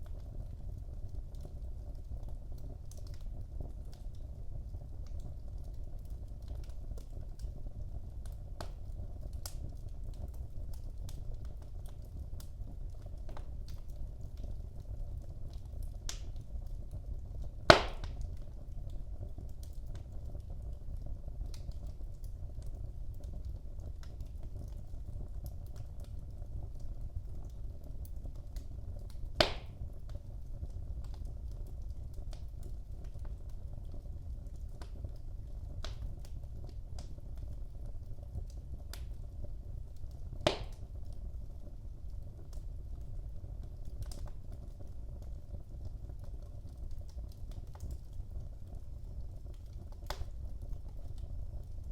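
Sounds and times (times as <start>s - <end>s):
fire crackling: 0.0s - 51.9s
fire flames rumbling: 0.0s - 51.9s
sharp loud pops: 17.7s - 18.1s, 29.4s - 29.7s, 40.5s - 40.8s.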